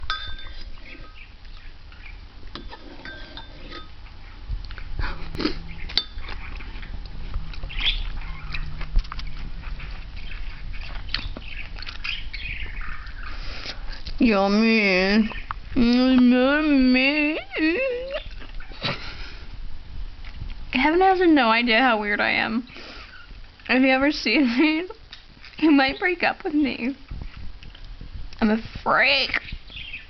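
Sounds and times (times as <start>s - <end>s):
steady low hum: 0.0s - 30.0s
animal chirps and squawks: 7.6s - 9.4s.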